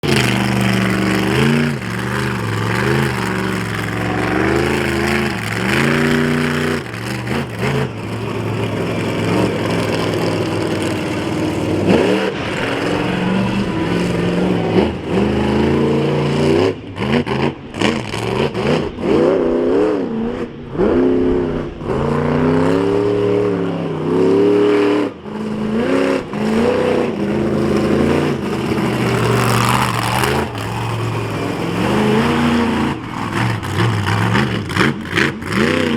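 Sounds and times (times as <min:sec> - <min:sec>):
truck engine revving: 0:00.0 - 0:35.9.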